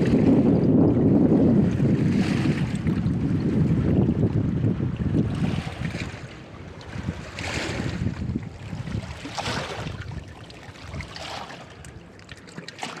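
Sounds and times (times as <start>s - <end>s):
wind buffeting microphone: 0.0s - 12.1s
rushing water: 1.9s - 13.0s.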